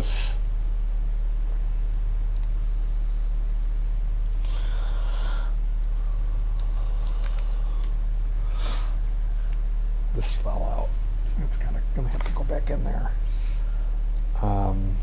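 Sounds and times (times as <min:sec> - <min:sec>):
low electrical hum: 0:00.0 - 0:15.0
breathy sniff or exhale: 0:08.4 - 0:09.0.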